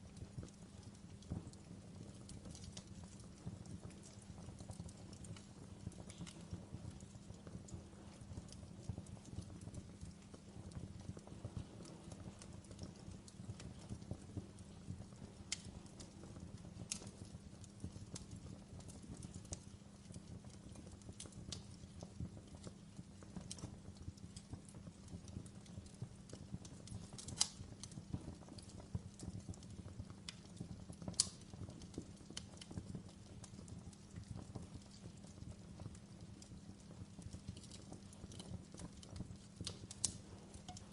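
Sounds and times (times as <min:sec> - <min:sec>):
logs burning in fireplace: 0:00.0 - 0:40.9
sharp fire pops: 0:20.5 - 0:35.1, 0:37.2 - 0:40.9.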